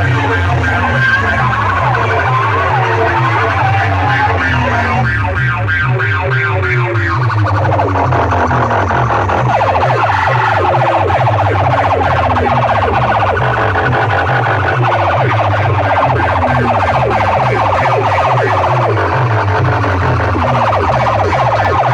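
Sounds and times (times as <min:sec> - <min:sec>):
falling siren-like sweeps: 0:00.0 - 0:06.4
pulsing bass: 0:00.0 - 0:21.9.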